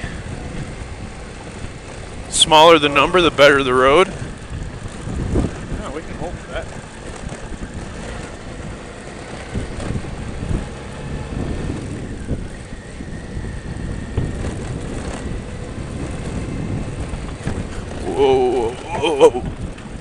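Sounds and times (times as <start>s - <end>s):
motorcycle engine running: 0.0s - 20.0s
wind noise: 0.0s - 20.0s
knocks and rattles: 16.9s - 19.9s.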